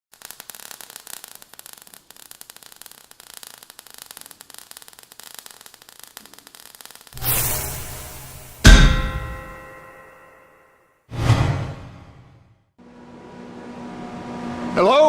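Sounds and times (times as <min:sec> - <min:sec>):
faint crackling static: 0:00.1 - 0:07.8.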